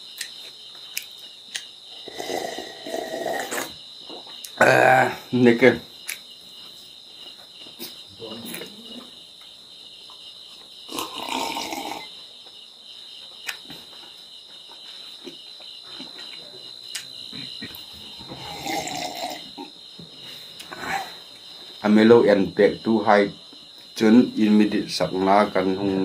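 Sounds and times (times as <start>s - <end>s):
crickets chirring: 0.0s - 26.0s
drinking from a glass mug: 2.0s - 3.8s, 10.9s - 12.1s, 17.3s - 19.7s.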